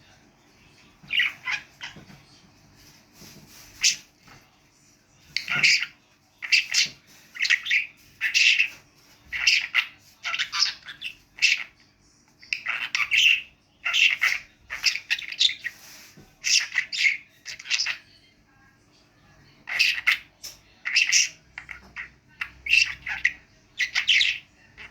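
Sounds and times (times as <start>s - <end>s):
budgerigar chattering: 5.4s - 11.8s, 12.4s - 15.7s, 19.7s - 24.9s.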